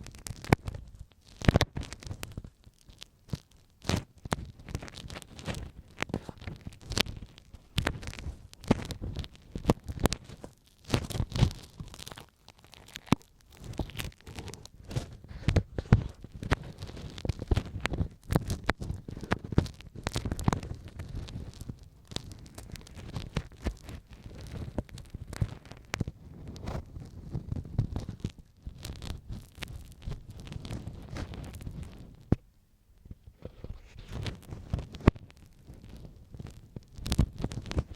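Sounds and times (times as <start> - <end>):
ear pick scratching microphone: 0.0 - 37.9.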